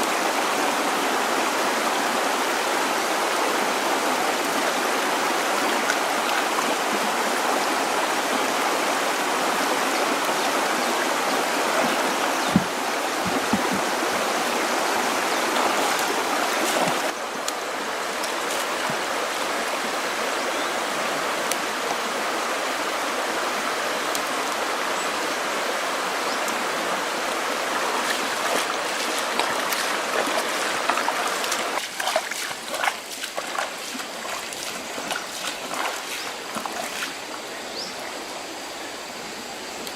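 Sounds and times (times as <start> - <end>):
stream water running: 0.0 - 39.9
soft knocks: 12.4 - 14.0.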